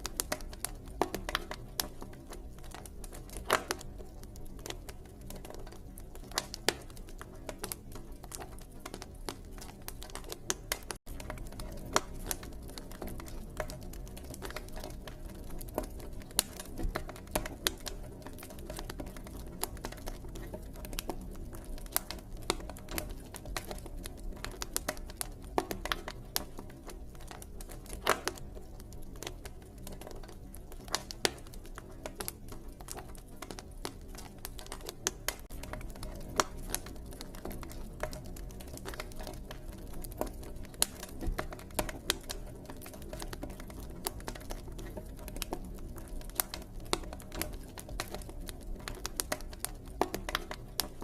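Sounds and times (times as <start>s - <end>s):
campfire crackling and popping: 0.0s - 51.0s.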